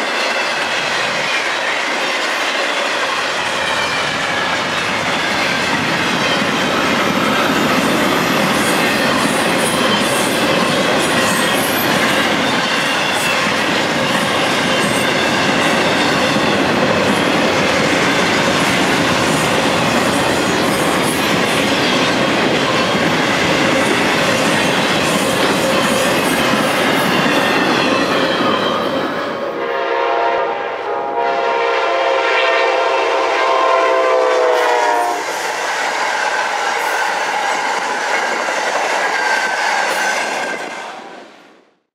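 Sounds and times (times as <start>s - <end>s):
freight train rumbling past: 0.0s - 41.6s
train horn chord: 29.5s - 35.3s.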